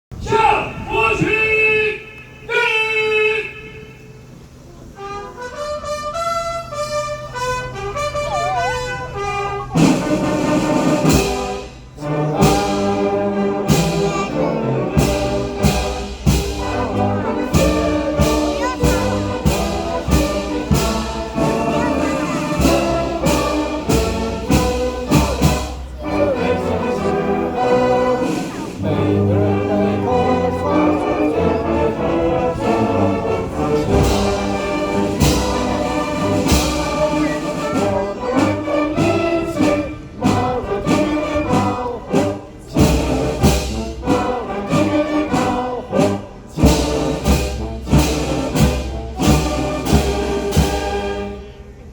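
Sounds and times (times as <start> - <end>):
military band brass: 0.1 - 51.9
drum beats: 9.7 - 51.2.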